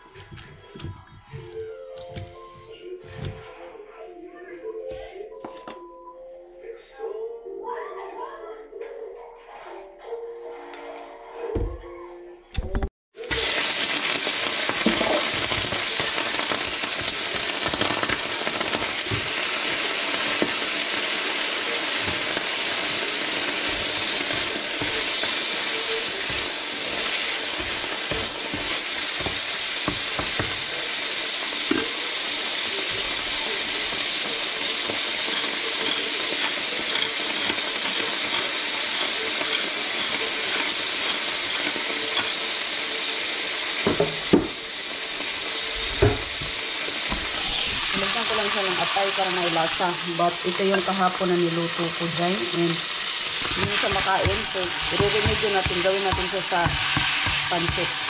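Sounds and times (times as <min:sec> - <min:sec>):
food sizzling in a pan: 0:13.2 - 0:58.0
wooden spatula scraping: 0:21.9 - 0:30.8, 0:53.3 - 0:58.0.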